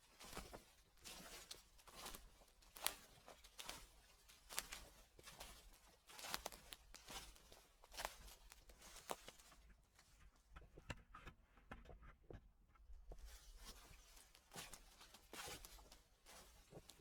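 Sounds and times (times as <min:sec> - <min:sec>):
footsteps crunching through dry leaves: 0:00.1 - 0:09.5, 0:13.6 - 0:17.0.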